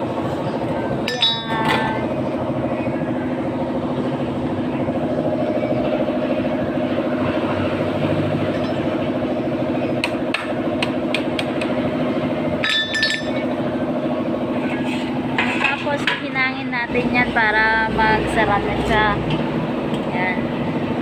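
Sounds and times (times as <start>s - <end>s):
steady mechanical hum: 0.0s - 21.0s
ringing metal clink: 1.1s - 2.0s, 12.6s - 13.5s.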